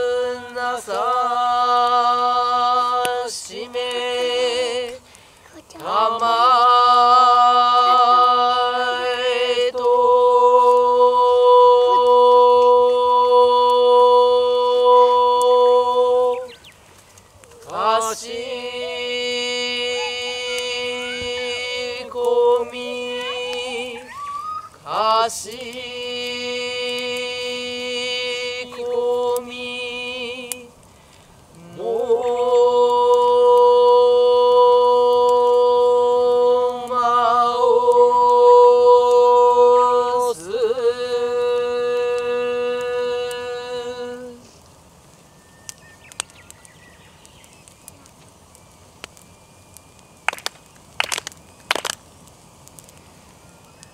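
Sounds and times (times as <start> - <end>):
person chanting long notes: 5.8 - 16.5, 17.8 - 24.3, 31.6 - 44.4.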